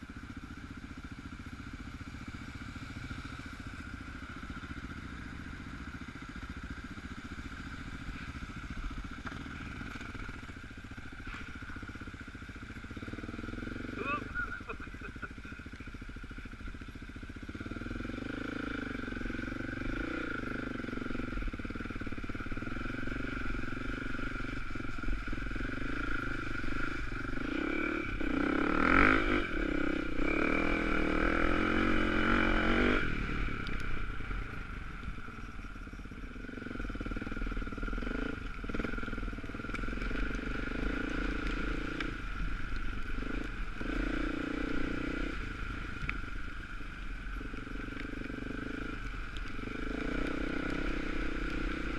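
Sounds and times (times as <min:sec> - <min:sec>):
dirt bike engine revving: 0:17.4 - 0:34.7, 0:36.3 - 0:45.6, 0:47.4 - 0:51.9.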